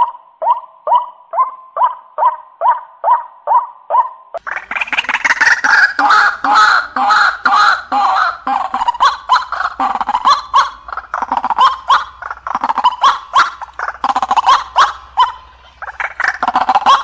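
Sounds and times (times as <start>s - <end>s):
harsh croaking calls: 4.4s - 17.0s
waterhen calling: 4.4s - 17.0s.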